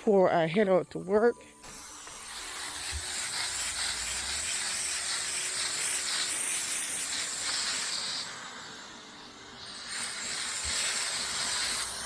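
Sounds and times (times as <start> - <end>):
water spraying on plants: 2.1 - 8.3.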